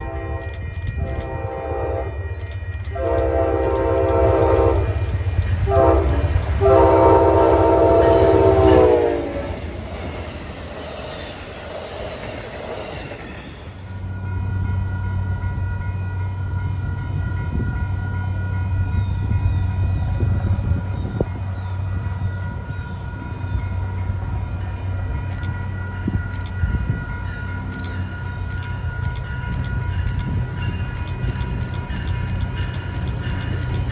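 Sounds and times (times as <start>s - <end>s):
locomotive air horn blasts: 0.0s - 2.3s, 2.9s - 9.6s
low locomotive rumble: 0.0s - 33.9s
passing train noise: 0.0s - 33.9s.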